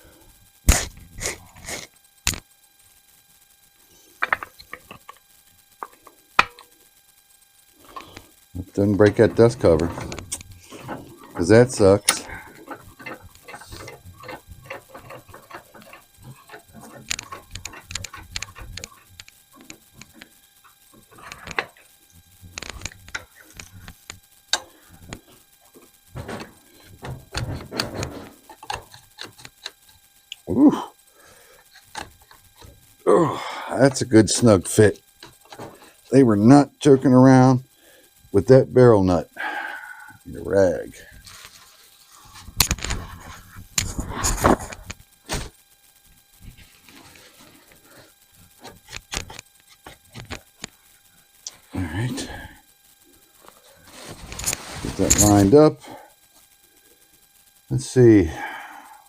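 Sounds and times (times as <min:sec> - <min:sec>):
metal parts clicking and tapping: 0:04.2 - 0:05.2, 0:05.8 - 0:06.7, 0:07.9 - 0:21.9, 0:22.5 - 0:30.5, 0:31.6 - 0:32.8, 0:33.9 - 0:36.1, 0:54.3 - 0:55.6
metal scraping and grinding: 0:07.8 - 0:30.0.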